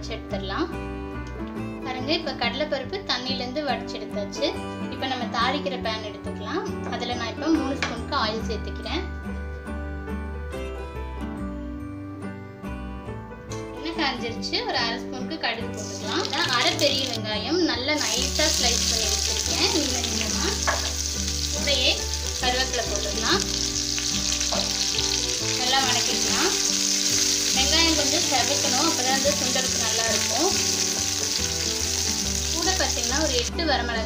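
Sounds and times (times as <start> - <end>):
onions frying in hot oil: 15.8 - 17.2, 18.0 - 33.5.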